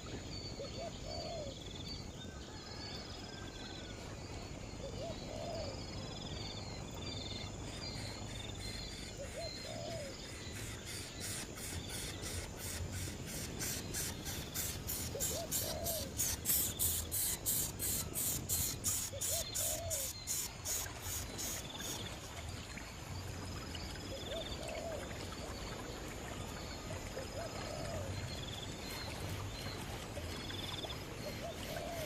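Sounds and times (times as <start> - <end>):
insect chirping: 5.0 - 22.3.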